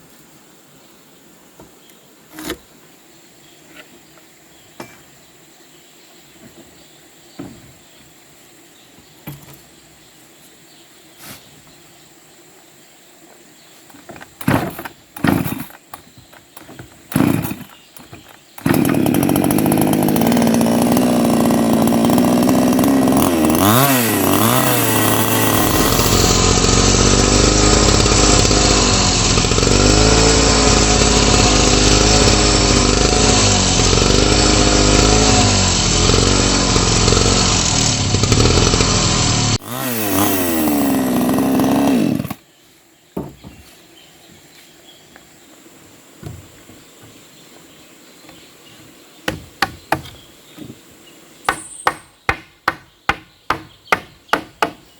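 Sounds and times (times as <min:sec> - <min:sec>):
chainsaw revving: 0:14.4 - 0:42.4.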